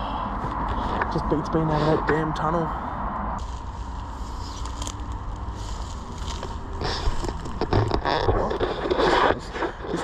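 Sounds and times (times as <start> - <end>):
steady low rumble: 0.0 - 10.0
footsteps crunching on rough ground: 3.4 - 10.0
rustling noise: 3.4 - 10.0.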